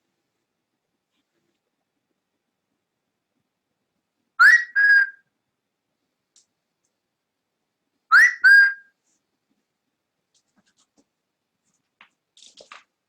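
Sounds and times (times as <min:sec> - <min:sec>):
cockatiel whistling: 0:04.4 - 0:05.2, 0:08.1 - 0:08.9.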